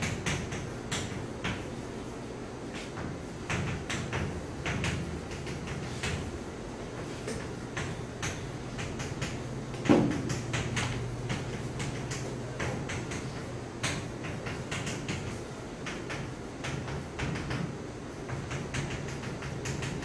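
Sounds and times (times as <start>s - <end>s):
chalk tapping on a board: 0.0s - 1.6s, 2.7s - 6.3s, 7.0s - 17.7s, 18.3s - 20.0s
steady low hum: 0.0s - 20.0s
loud knock: 8.8s - 13.2s.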